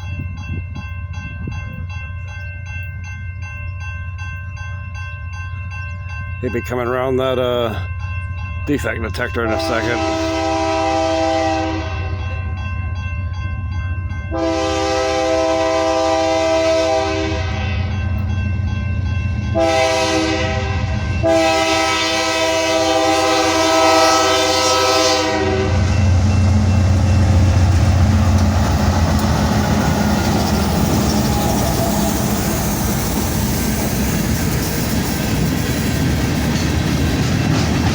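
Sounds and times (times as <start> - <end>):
rail noise: 0.0 - 37.9
train rumble: 0.0 - 37.9
train air horn blasts: 9.5 - 12.2, 14.3 - 17.9, 19.5 - 26.2.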